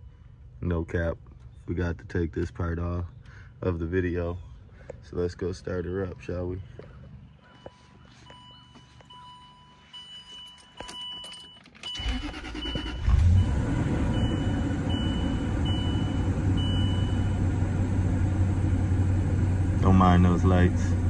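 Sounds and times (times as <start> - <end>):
car engine cranking and idling: 4.8 - 21.0
dashboard warning chime beeping: 7.4 - 17.4.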